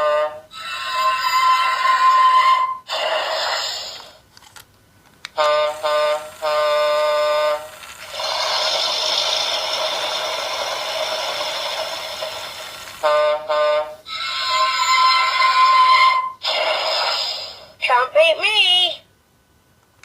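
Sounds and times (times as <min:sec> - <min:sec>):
electronic toy train horn toots: 0:00.0 - 0:03.2, 0:05.4 - 0:08.6, 0:13.0 - 0:16.4
hissing engine-noise effect: 0:05.6 - 0:13.2.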